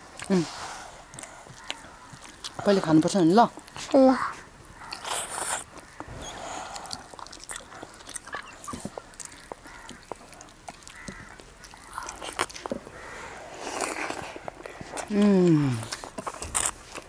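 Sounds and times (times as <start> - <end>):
wet chewing: 1.0 - 17.0
lip-smacks and mouth clicks: 6.7 - 12.8.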